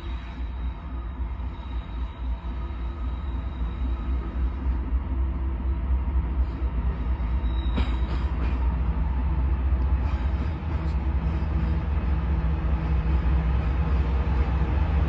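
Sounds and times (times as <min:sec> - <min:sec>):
locomotive engine rumbling: 0:00.0 - 0:15.0.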